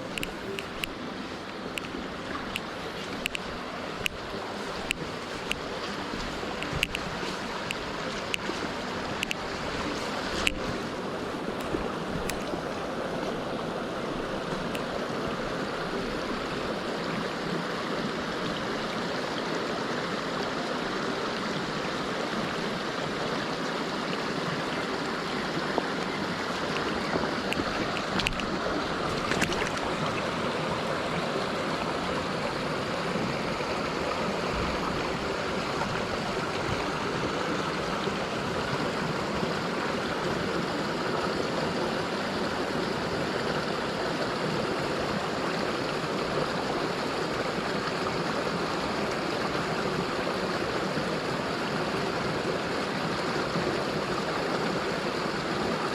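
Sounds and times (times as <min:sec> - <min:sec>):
stream rushing over rocks: 0:00.0 - 0:55.9.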